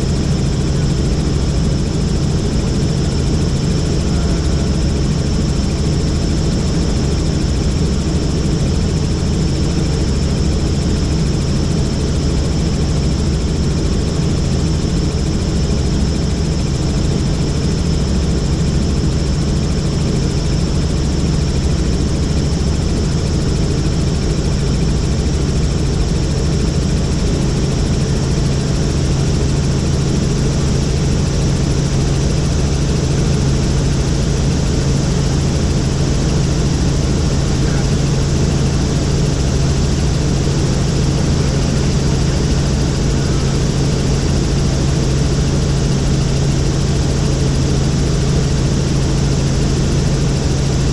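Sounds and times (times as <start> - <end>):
faint high whine: 0.0 - 50.9
helicopter rotor and engine: 0.0 - 50.9.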